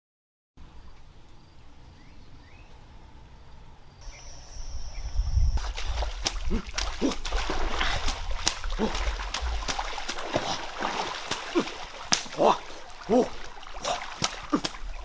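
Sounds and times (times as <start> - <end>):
faint rainforest ambience: 0.6 - 15.0
steady high thin tone: 4.0 - 5.6
short low sounds: 8.7 - 10.6.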